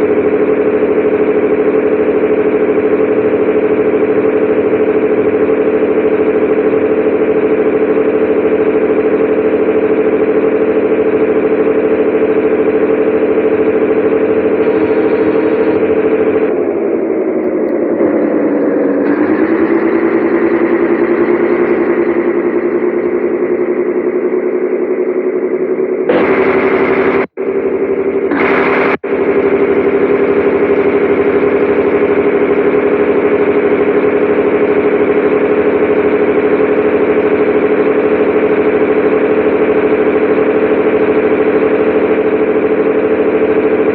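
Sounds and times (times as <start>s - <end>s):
diesel truck engine running: 0.0s - 43.9s.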